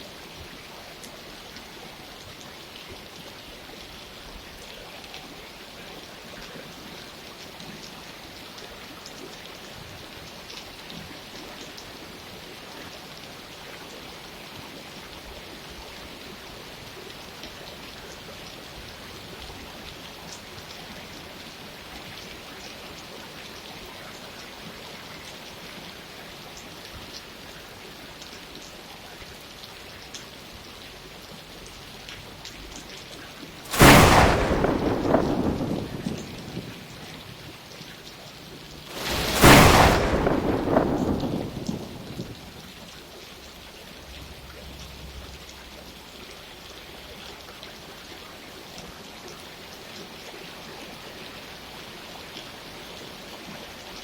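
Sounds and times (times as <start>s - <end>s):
steady rain falling: 0.0s - 54.0s
loud thunderclap rumbling: 33.7s - 37.3s, 38.9s - 42.8s.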